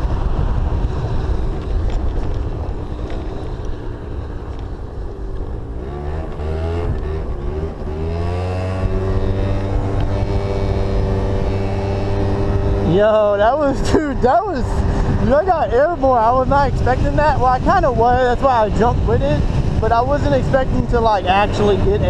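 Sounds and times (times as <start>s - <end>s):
scooter engine: 0.0s - 13.3s
rough rushing noise: 0.0s - 22.0s.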